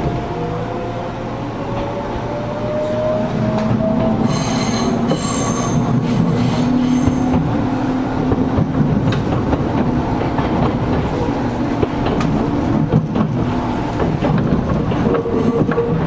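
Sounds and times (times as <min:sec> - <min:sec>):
train wheels rumbling and humming: 0:00.0 - 0:16.0
track clicks and knocks: 0:05.8 - 0:16.0.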